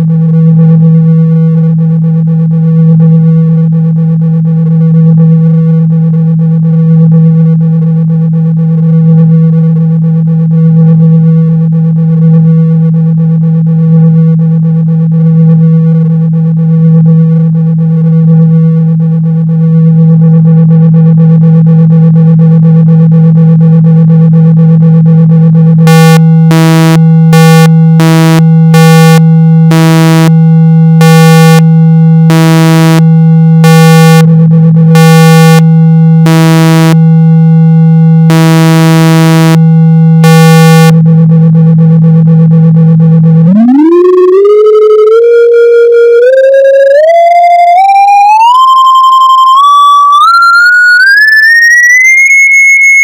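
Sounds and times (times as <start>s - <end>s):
steady low buzzing tone: 0.0s - 50.6s
higher tone switching on and off: 43.3s - 53.0s
pure tone sweeping upward: 43.4s - 53.0s.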